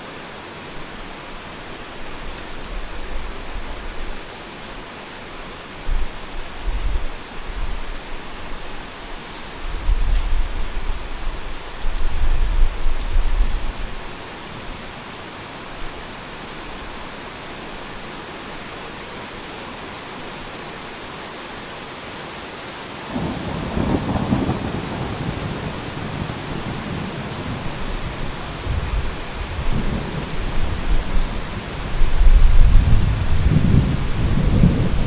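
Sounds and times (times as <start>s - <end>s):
heavy rain: 0.0s - 35.0s
rolling thunder: 23.1s - 35.0s.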